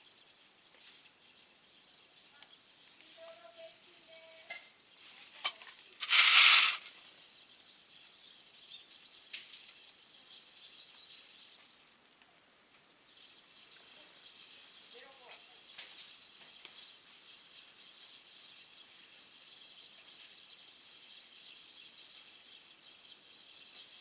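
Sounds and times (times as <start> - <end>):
loud rustling burst: 6.0 - 7.0.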